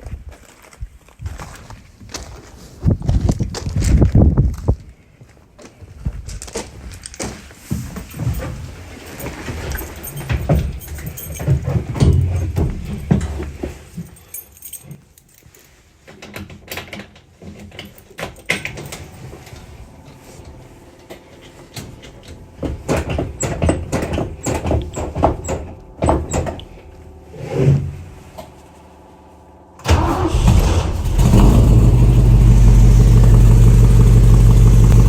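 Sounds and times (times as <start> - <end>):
knocks clicks and rattles: 21.4 - 26.7.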